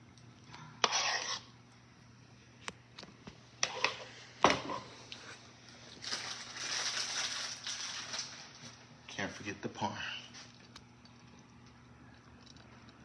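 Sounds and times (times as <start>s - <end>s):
rough scraping: 0.8s - 1.4s.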